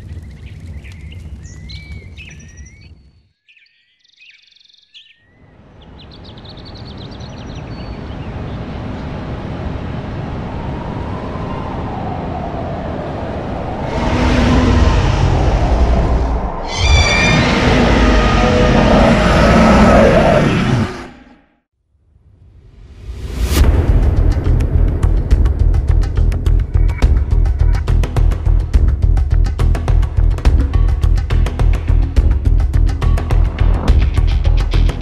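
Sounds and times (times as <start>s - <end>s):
birds chirping: 0.0s - 9.6s, 13.6s - 21.3s
low rumble: 10.2s - 21.2s, 22.4s - 31.1s
rumbling noise bending in pitch: 13.6s - 21.4s.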